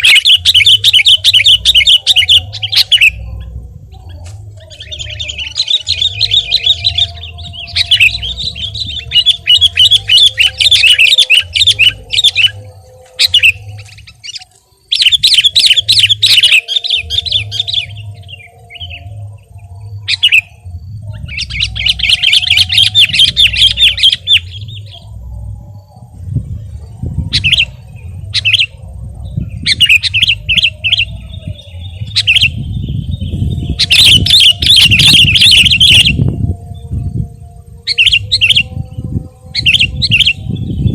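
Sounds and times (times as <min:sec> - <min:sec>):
bird chirping song: 0:00.0 - 0:40.9
low rumble: 0:02.4 - 0:10.9, 0:17.3 - 0:22.0, 0:23.4 - 0:40.9.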